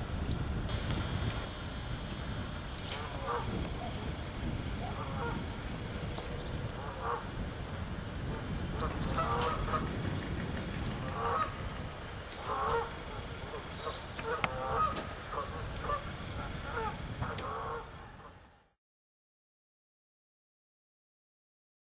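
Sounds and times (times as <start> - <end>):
birds honking: 2.1 - 18.4.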